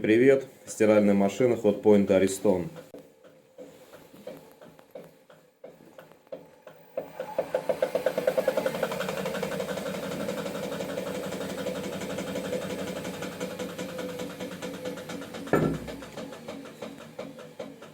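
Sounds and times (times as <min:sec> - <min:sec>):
washing machine drum spinning: 0:01.6 - 0:17.9
loud rhythmic knocking: 0:05.0 - 0:17.9.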